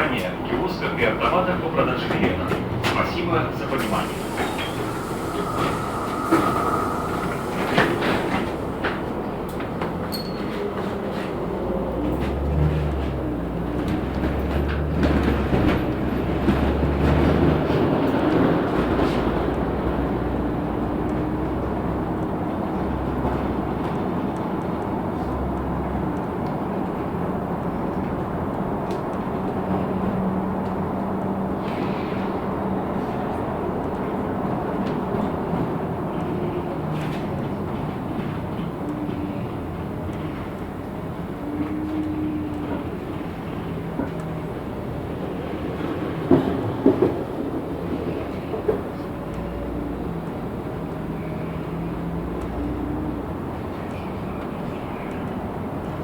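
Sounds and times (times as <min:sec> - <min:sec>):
bus running noise: 0:00.0 - 0:56.0
road noise: 0:00.0 - 0:56.0
low hum: 0:04.2 - 0:09.3
faint whine: 0:04.3 - 0:09.3.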